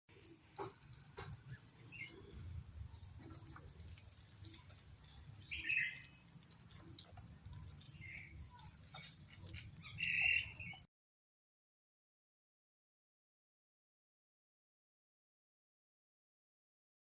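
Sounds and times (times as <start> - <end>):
bird chirps: 0.1 - 10.9.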